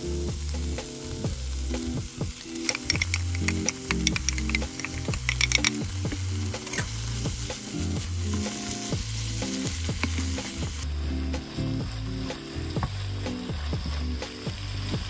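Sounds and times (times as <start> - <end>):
food sizzling in a hot pan: 0.0 - 15.0.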